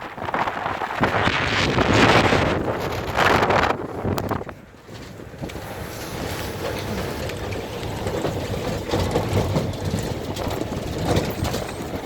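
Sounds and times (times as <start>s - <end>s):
vehicle road and wind noise: 0.0s - 12.0s.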